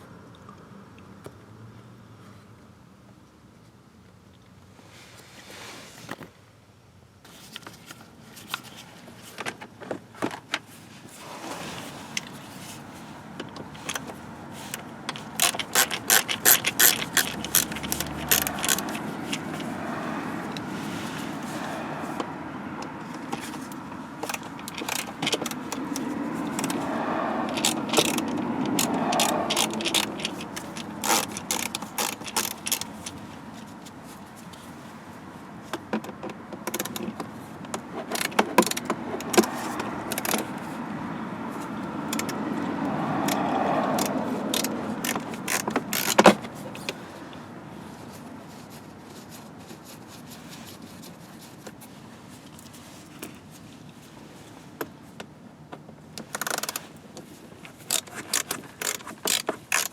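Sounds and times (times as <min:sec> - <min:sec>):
tools and parts clattering: 0:13.5 - 0:19.8, 0:23.2 - 0:26.9, 0:27.5 - 0:33.2.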